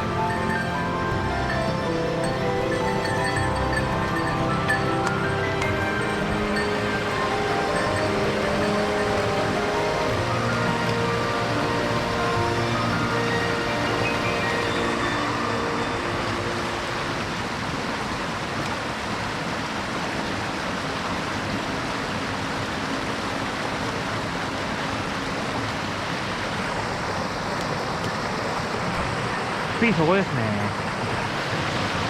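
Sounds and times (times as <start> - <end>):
background music: 0.0 - 18.2
stream rushing over rocks: 0.0 - 32.0.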